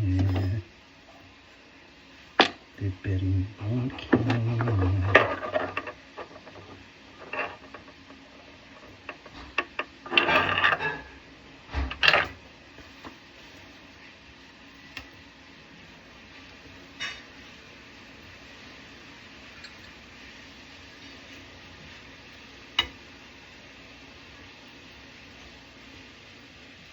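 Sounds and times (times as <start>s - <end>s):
plumbing tools clinking and scraping: 3.6s - 11.2s.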